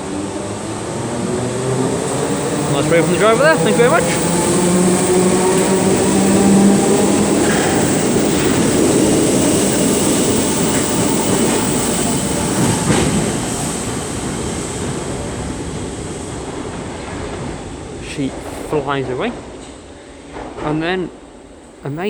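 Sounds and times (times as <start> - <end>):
train wheels rumbling and clattering: 0.0 - 18.1
electric train motors humming: 0.6 - 11.6.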